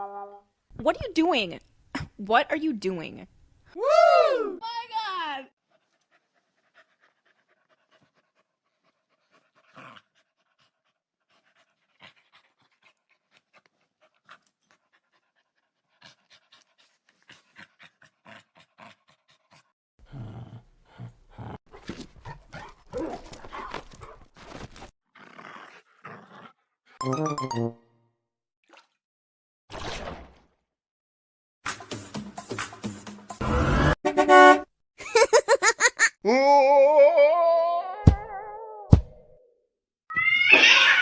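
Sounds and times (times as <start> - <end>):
dog panting: 5.6 - 19.7.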